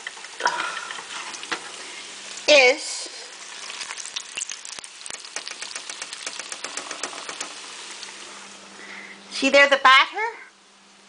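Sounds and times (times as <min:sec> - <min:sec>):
fish sizzling in hot oil: 0:00.0 - 0:08.6.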